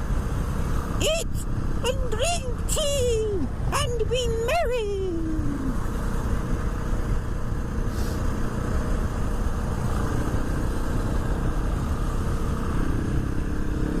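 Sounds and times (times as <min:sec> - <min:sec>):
brief hiss: 0:07.9 - 0:08.3.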